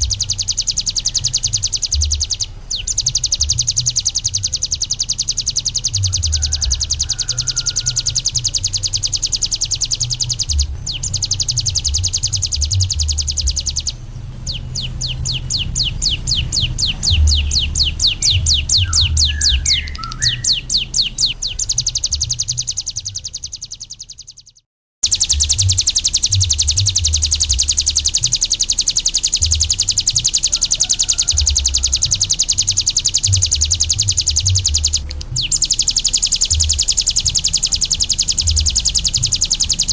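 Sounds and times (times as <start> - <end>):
low rumbling thumps: 0.0 - 5.0, 10.0 - 23.3, 33.2 - 35.7
songbird high rapid trill: 0.0 - 39.9.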